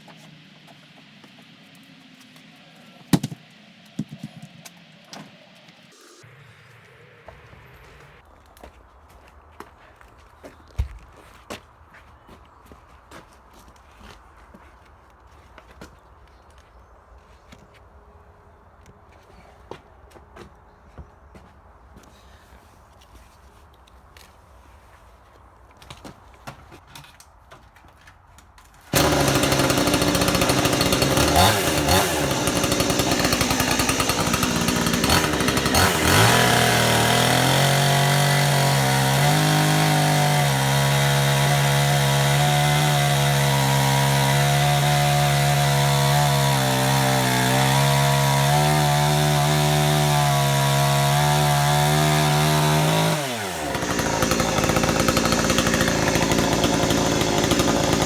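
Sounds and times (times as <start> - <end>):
chainsaw cutting log: 3.1 - 5.3, 28.9 - 58.0.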